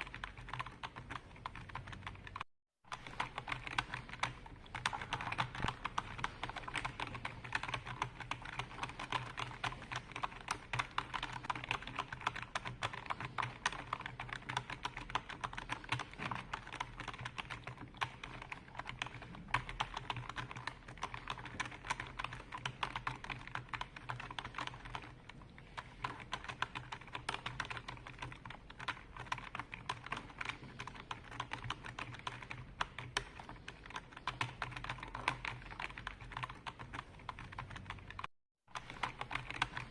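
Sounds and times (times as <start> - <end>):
computer keyboard typing: 0.0 - 39.9.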